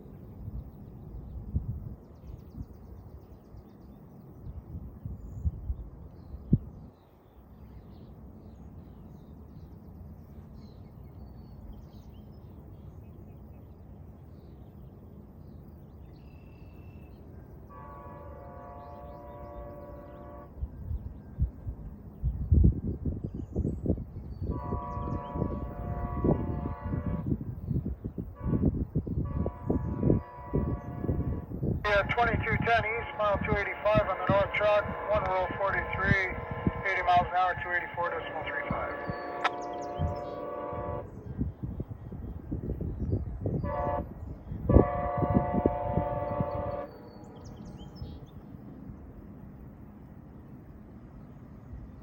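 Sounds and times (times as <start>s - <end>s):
locomotive air horn blast: 17.7s - 20.5s, 24.5s - 27.4s, 28.4s - 41.2s, 43.6s - 46.9s
passing train rumble and knocking: 23.8s - 52.0s.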